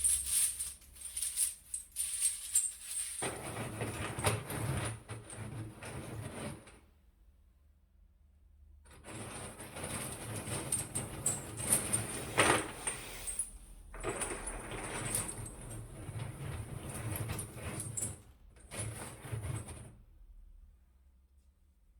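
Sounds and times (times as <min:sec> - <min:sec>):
ceramic pieces rattling and clinking: 0:00.0 - 0:03.2.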